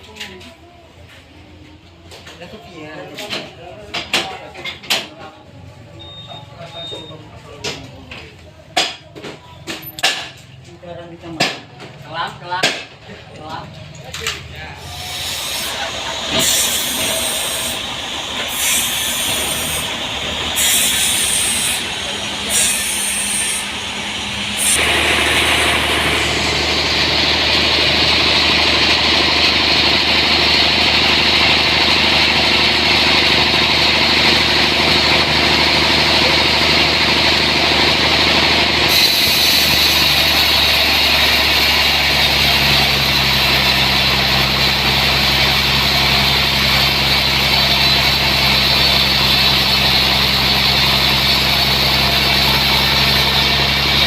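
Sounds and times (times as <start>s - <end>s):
sawmill engine running: 14.6s - 54.0s.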